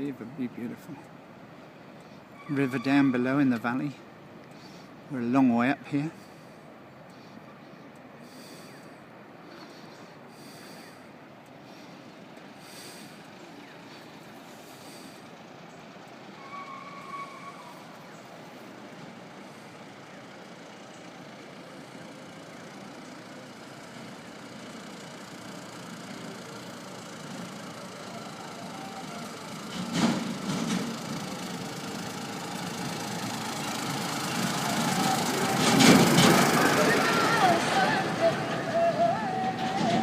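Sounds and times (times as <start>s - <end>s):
vehicle engine running: 17.7s - 40.0s.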